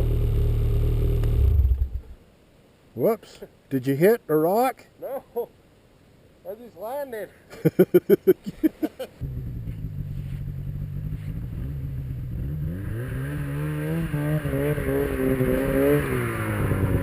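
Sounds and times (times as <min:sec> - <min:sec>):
snowmobile engine revving: 0:09.2 - 0:17.0.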